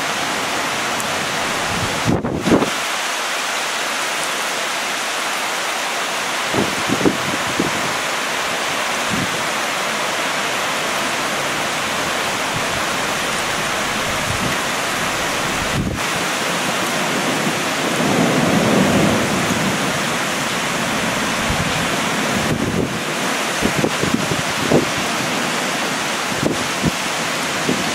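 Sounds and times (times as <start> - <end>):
heavy rain pouring: 0.0 - 27.9
thunder rumbling: 1.4 - 2.8, 12.5 - 16.3, 17.0 - 23.0.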